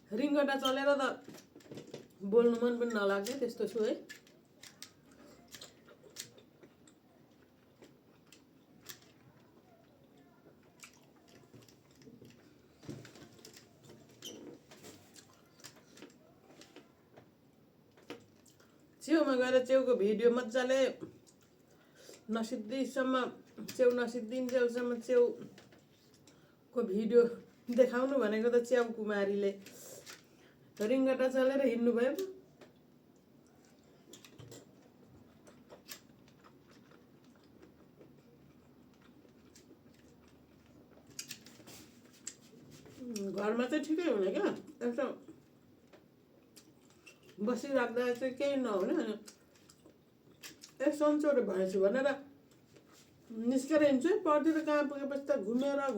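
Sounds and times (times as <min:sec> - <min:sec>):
person chewing dumplings: 0:04.1 - 0:19.0, 0:21.1 - 0:22.3, 0:32.5 - 0:43.2, 0:45.2 - 0:47.4, 0:49.2 - 0:50.8.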